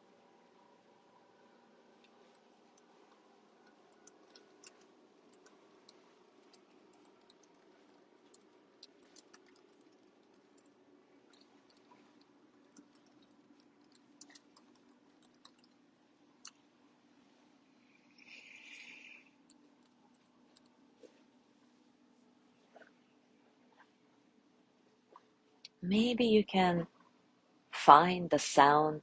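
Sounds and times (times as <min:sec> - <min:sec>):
low steady hum: 0:00.0 - 0:29.0
faint irregular clicks: 0:01.9 - 0:17.0, 0:17.8 - 0:21.4.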